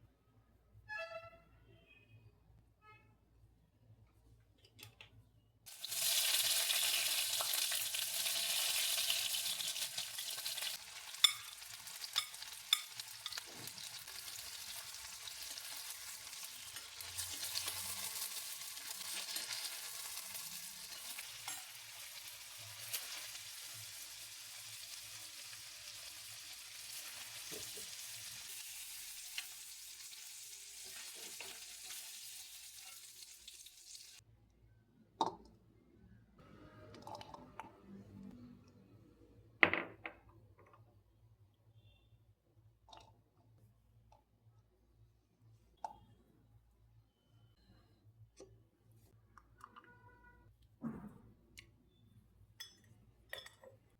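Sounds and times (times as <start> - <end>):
food sizzling in hot oil: 5.7 - 34.2.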